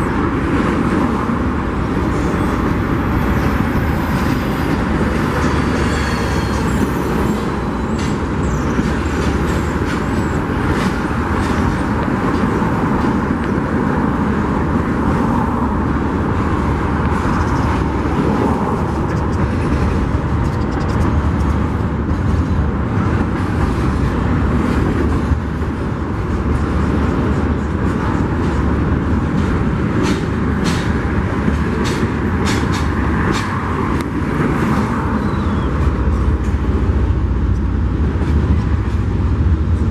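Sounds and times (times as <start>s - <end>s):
freight train cars rumbling: 0.0s - 39.9s
faint high squeal: 5.5s - 8.8s.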